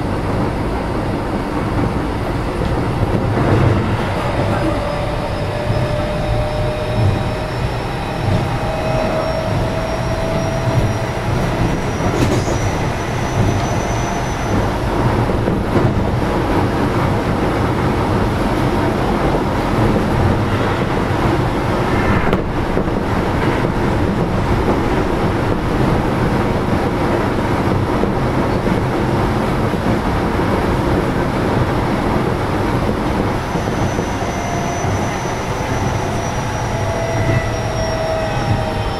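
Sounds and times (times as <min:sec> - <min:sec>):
train wheels rumbling on rail: 0:00.0 - 0:38.9
high-pitched wheel whines: 0:04.2 - 0:14.8, 0:33.5 - 0:38.9.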